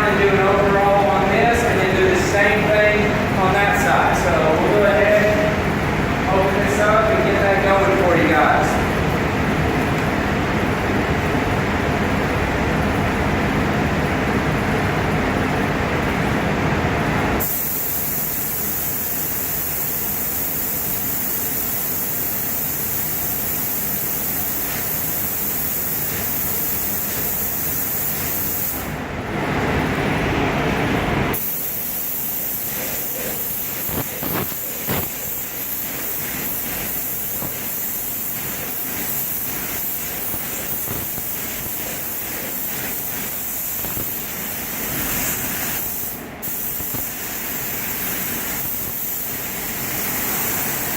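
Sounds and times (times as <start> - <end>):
paint booth fan: 0.0 - 50.9
spray gun hissing: 17.4 - 28.9, 31.3 - 50.9.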